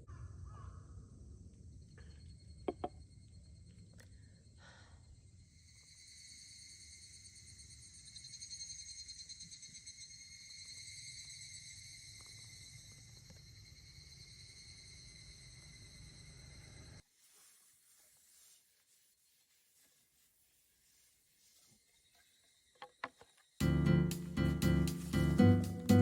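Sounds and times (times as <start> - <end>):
insects trilling chorus: 4.4 - 17.0.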